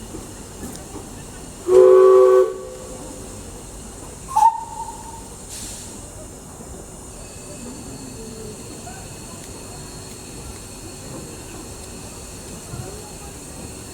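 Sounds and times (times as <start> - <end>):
steam locomotive chord whistle: 1.6 - 3.4, 4.3 - 5.3.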